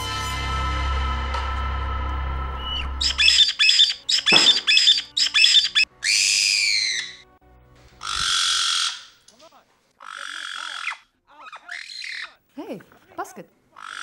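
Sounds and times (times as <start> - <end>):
parrot squawking: 2.7 - 7.2, 8.0 - 9.2, 10.0 - 12.4, 13.8 - 14.0.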